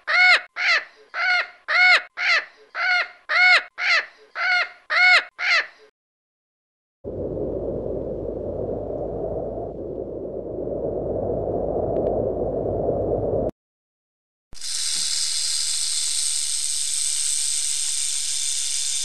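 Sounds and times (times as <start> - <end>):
low rough noise: 7.1 - 13.5.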